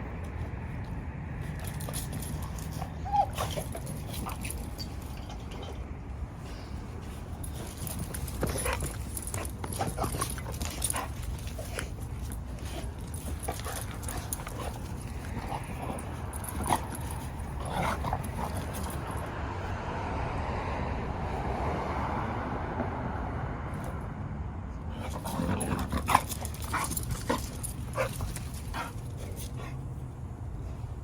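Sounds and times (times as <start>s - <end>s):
dogs whimpering and yipping: 1.5s - 5.9s, 7.2s - 19.3s, 25.0s - 29.9s.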